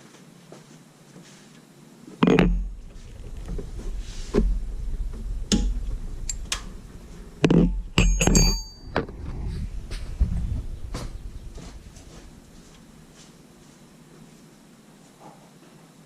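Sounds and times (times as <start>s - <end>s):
metal hand tools clinking: 8.0s - 8.9s.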